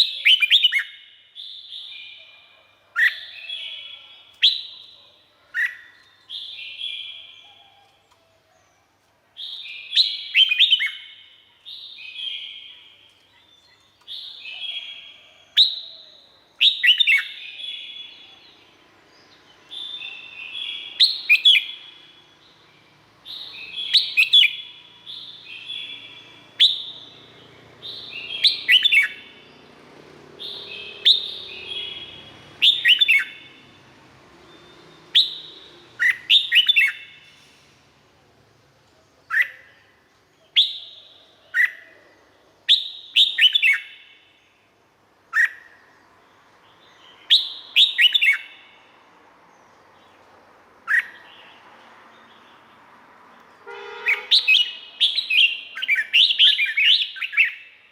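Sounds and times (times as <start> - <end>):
bird whistled song: 0.0 - 7.9, 9.4 - 18.6, 19.6 - 29.6, 30.4 - 33.8, 34.4 - 37.5, 39.3 - 41.9, 42.7 - 44.4, 45.3 - 45.9, 46.9 - 48.9, 50.9 - 51.6, 54.0 - 57.9.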